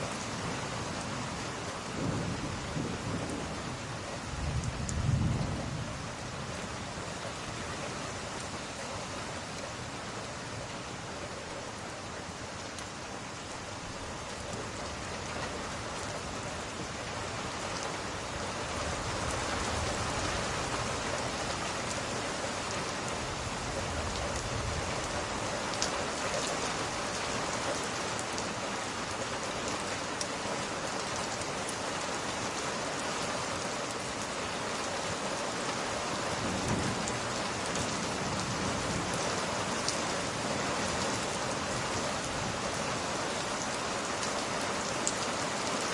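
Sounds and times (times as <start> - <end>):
rain falling: 0.0 - 45.9
thunder rumbling: 2.0 - 6.0.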